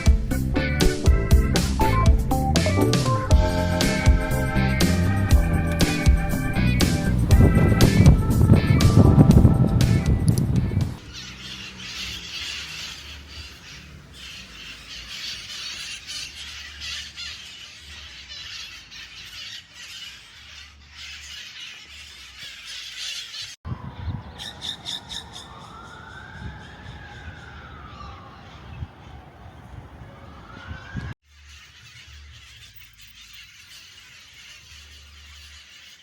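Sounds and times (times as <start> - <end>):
flock of parrots screeching: 11.0 - 23.6, 24.2 - 29.4, 30.2 - 36.0.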